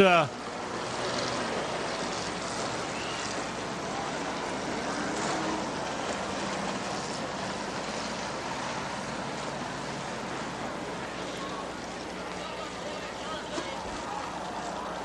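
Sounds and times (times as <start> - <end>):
race car engines rushing: 0.0 - 15.0.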